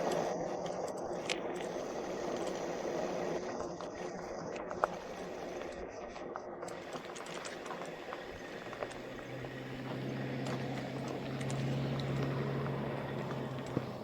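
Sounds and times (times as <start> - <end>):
low motor hum: 0.0 - 14.0
tyres crunching over gravel: 0.0 - 14.0.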